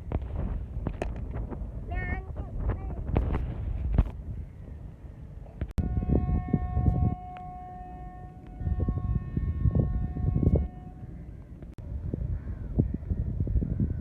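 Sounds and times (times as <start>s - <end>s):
wind buffeting microphone: 0.0s - 14.0s
train horn blasts: 5.8s - 11.5s.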